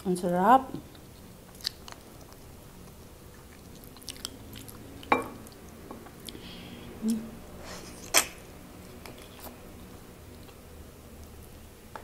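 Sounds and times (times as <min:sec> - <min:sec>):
person chewing: 0:00.9 - 0:06.4, 0:08.9 - 0:09.6.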